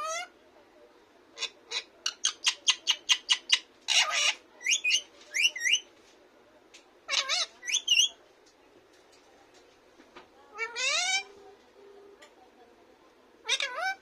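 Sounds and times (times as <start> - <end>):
parrot chattering and squawking: 0.0 - 0.3, 1.4 - 5.8, 7.0 - 8.2, 10.5 - 11.3, 13.4 - 14.0.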